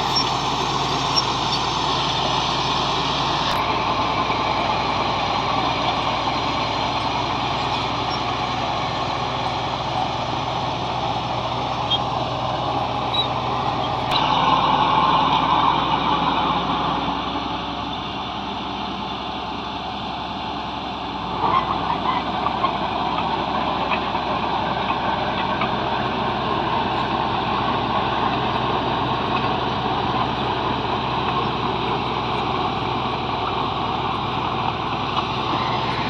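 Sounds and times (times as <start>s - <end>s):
bulldozer diesel engine running: 0.0s - 36.0s.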